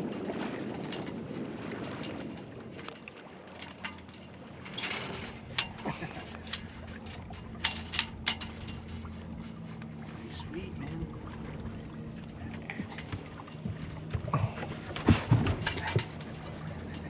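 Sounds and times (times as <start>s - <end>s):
sailboat gear clicks and knocks: 0.1s - 17.0s
low hum: 4.5s - 17.0s.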